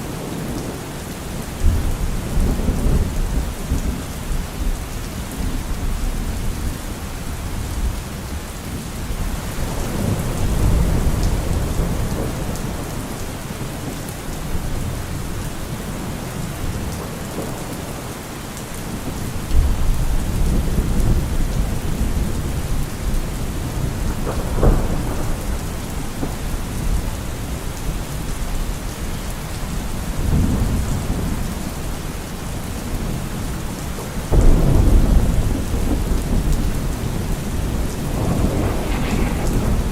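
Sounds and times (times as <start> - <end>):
heavy rain falling: 0.0 - 39.9
thunder rumbling: 34.3 - 39.9
sharp thunder crack: 34.4 - 39.9.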